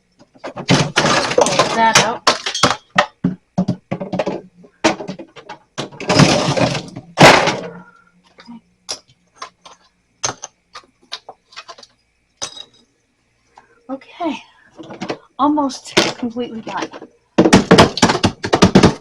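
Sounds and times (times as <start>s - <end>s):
ice cracking and knocking: 16.0s - 19.0s.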